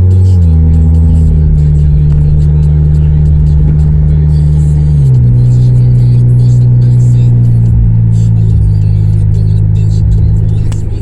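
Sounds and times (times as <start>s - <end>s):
loud car engine drone: 0.0s - 11.0s.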